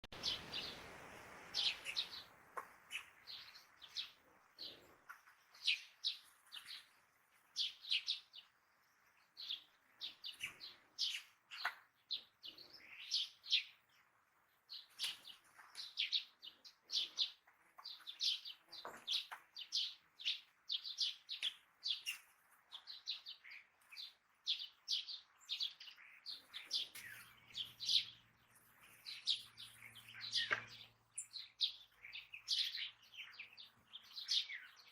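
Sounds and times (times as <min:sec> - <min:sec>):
songbirds chirping: 0:00.0 - 0:34.9.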